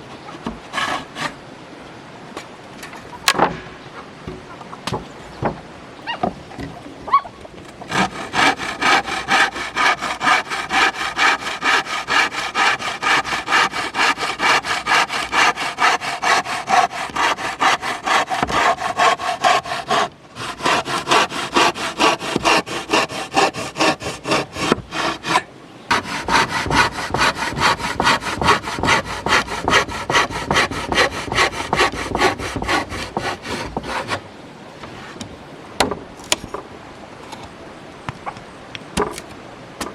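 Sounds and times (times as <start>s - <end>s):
hand saw cutting wood: 0.3s - 1.4s, 7.8s - 34.2s.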